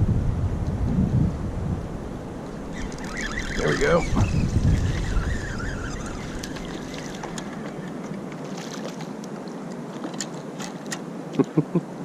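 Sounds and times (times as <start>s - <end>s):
wind rumble on microphone: 0.0s - 8.6s.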